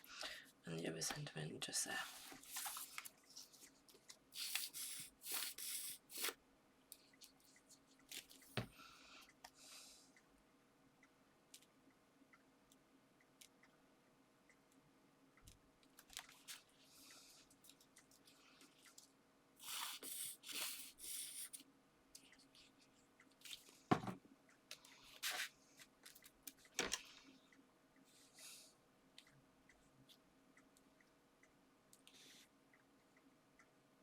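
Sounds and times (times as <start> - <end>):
paper rustling: 2.0 - 6.3
card tapping on table: 23.9 - 24.2.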